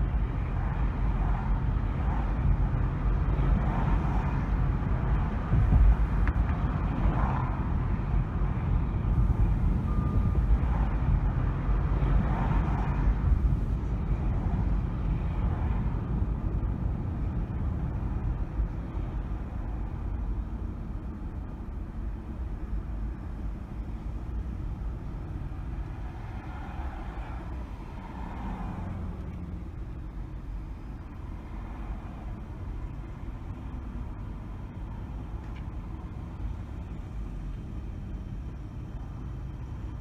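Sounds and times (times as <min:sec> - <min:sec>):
car engine and tyre rumble: 0:00.0 - 0:40.0
faint other traffic: 0:00.0 - 0:40.0.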